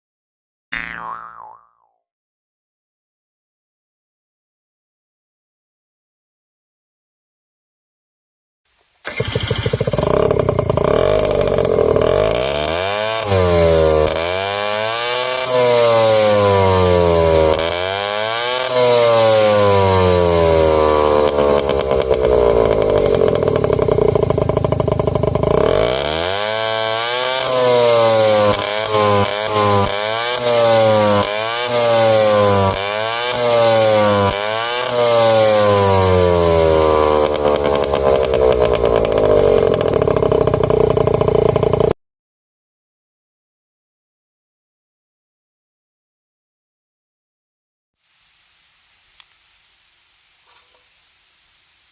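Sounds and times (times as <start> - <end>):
scooter throttle blips: 9.1 - 13.4, 20.5 - 27.4, 36.9 - 42.0
scooter engine revving and idling: 9.1 - 42.0.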